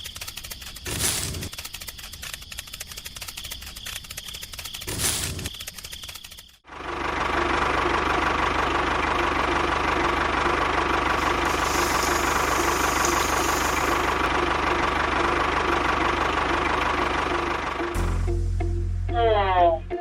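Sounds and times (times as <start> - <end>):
small machine motor knocking: 0.0 - 6.7, 11.2 - 14.3.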